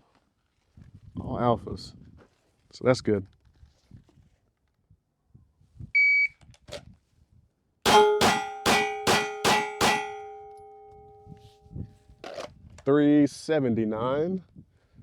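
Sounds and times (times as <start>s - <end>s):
metallic ringing: 7.9s - 11.6s.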